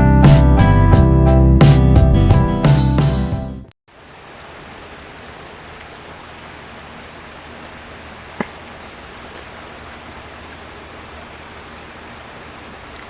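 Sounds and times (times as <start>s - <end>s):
rain pattering: 3.9s - 13.0s.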